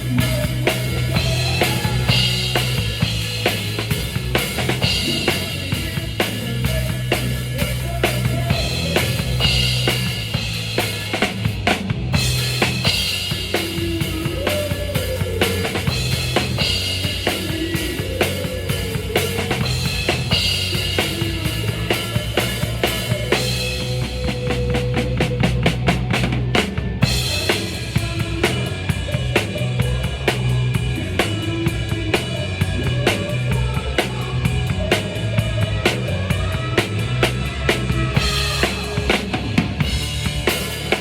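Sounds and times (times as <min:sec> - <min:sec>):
bass line: 0:00.0 - 0:41.0
drum kit beat: 0:00.0 - 0:41.0
live band music: 0:00.0 - 0:41.0.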